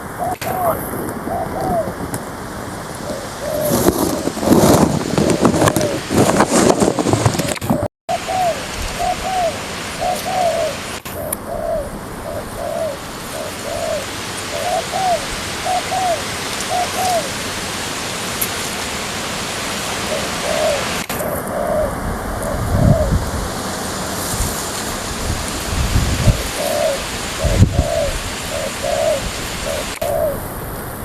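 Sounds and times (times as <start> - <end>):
dove cooing: 0.0 - 17.5, 19.9 - 23.4, 25.6 - 30.8
steady hiss: 8.1 - 31.0.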